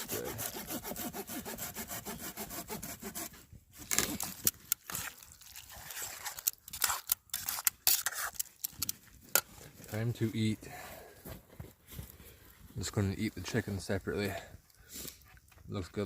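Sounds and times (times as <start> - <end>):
rasping scraping strokes: 0.0 - 9.6.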